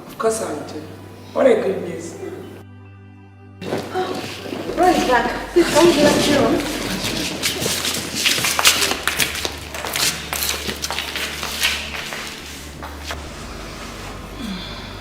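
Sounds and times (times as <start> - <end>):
rustling: 3.6 - 14.4
steady low hum: 3.6 - 15.0.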